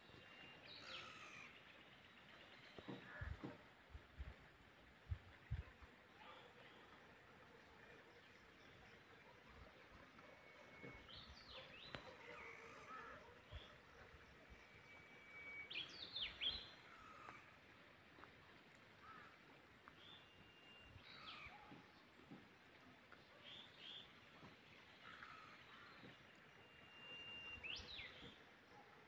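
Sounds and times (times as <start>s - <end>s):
songbird whistles and chirps: 14.6s - 16.8s, 26.5s - 28.4s.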